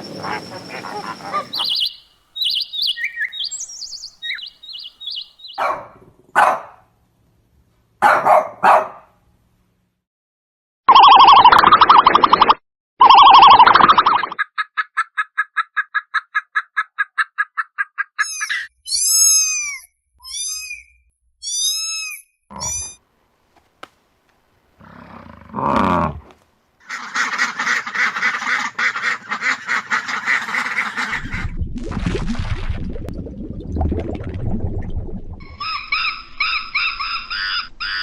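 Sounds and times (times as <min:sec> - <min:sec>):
honk-like animal calls: 0:00.0 - 0:01.8
animal chattering calls: 0:00.0 - 0:03.6
chorus of animal calls: 0:00.0 - 0:05.6.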